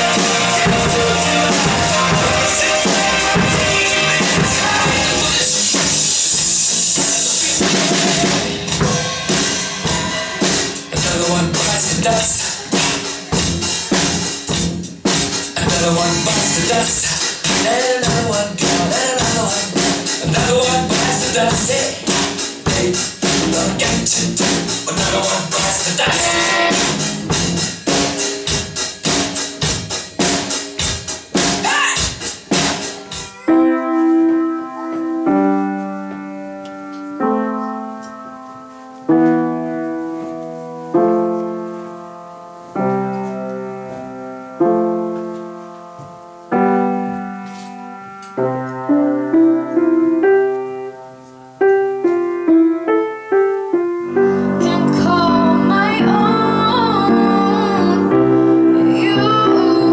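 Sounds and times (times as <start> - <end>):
person singing: 0.0 - 13.6, 15.5 - 26.9, 54.1 - 59.9
piano playing slow chords: 0.0 - 17.1, 33.2 - 59.9
drum-driven rock band: 0.0 - 33.5.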